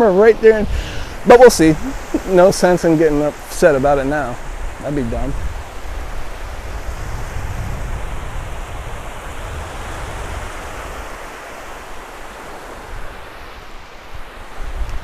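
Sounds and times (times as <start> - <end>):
surf washing onto beach: 0.0 - 15.0
wind rumble on microphone: 0.3 - 15.0.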